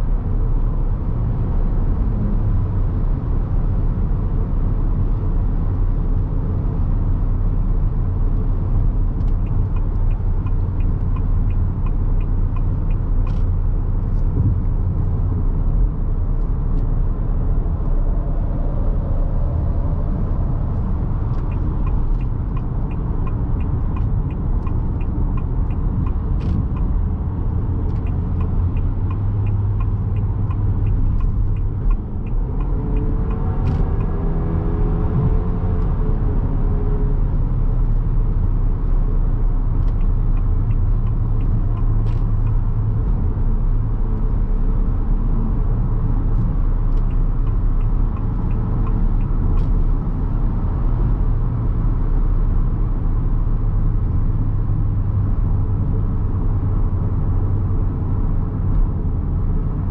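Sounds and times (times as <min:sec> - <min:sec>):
car engine and road rumble: 0:00.0 - 0:59.9
light ticking: 0:21.3 - 0:34.2.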